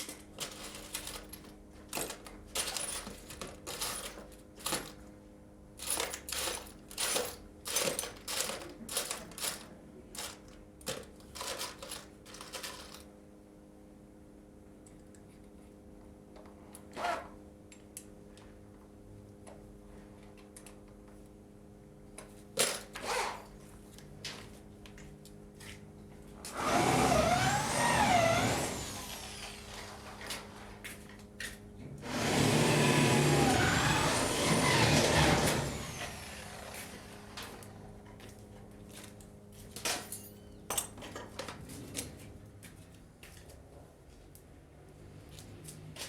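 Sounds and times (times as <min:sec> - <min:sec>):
electric power tool motor: 0:26.5 - 0:30.4, 0:32.0 - 0:37.7.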